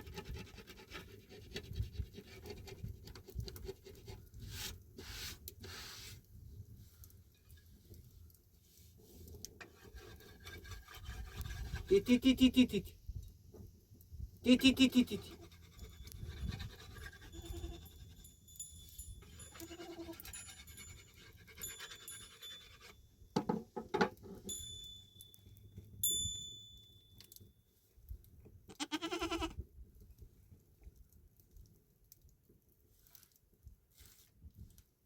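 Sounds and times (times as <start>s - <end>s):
animal bleating: 17.2s - 17.9s, 19.5s - 20.2s, 28.7s - 29.6s.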